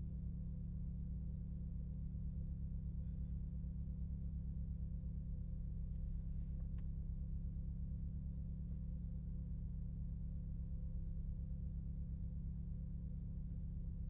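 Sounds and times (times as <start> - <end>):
car engine running steadily: 0.0 - 14.0
faint click: 6.5 - 7.0.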